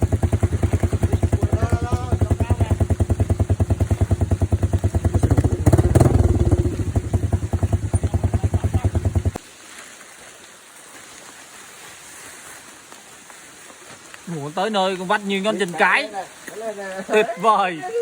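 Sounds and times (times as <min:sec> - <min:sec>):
motorcycle engine running: 0:00.0 - 0:09.4
rain on leaves: 0:00.0 - 0:17.8.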